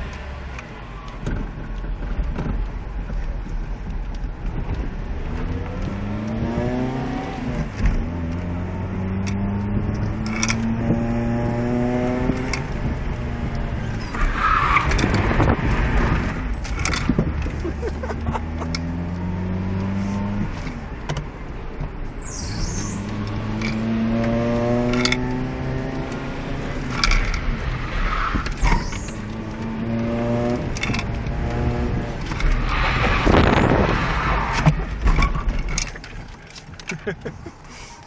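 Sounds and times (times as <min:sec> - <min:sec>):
car engine revving: 0:05.2 - 0:20.8, 0:22.8 - 0:35.0
tyres squealing: 0:22.1 - 0:23.1, 0:26.8 - 0:29.4.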